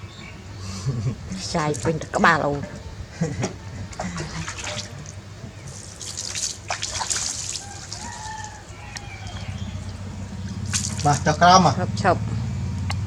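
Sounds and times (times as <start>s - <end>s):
steady low hum: 0.0s - 13.0s
water splashing and dripping: 1.4s - 2.9s, 3.5s - 13.0s.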